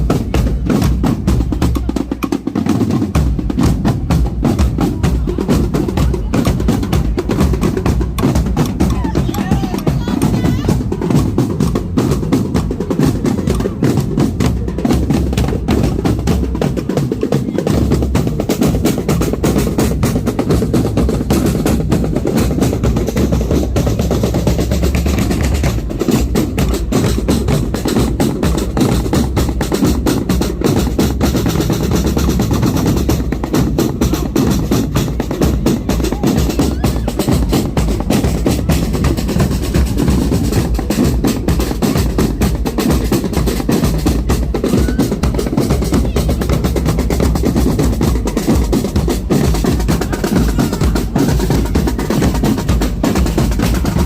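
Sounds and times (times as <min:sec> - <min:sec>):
bass drum beats: 0:00.0 - 0:54.0
snare drum rolls: 0:00.0 - 0:54.0.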